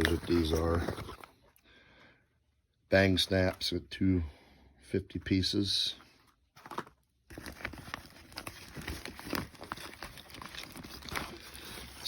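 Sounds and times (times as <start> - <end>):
packaging rustling and crinkling: 0.0 - 1.5, 6.5 - 12.0.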